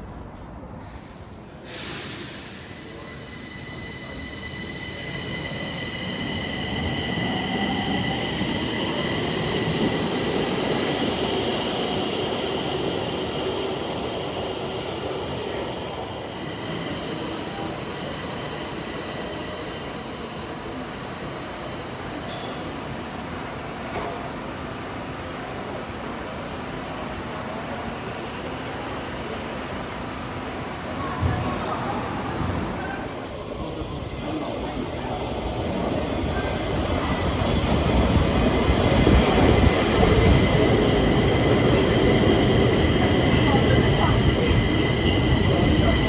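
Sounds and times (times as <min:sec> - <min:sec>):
metro train running on track: 0:00.0 - 0:46.0.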